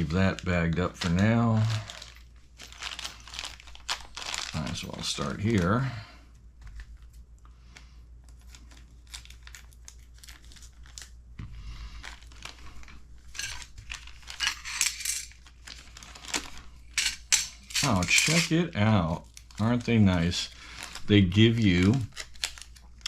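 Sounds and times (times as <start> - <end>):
plastic bag crinkling and tearing: 0.0 - 6.0, 6.6 - 17.0, 17.8 - 23.0
small hard parts clinking: 13.3 - 15.5, 16.2 - 18.6.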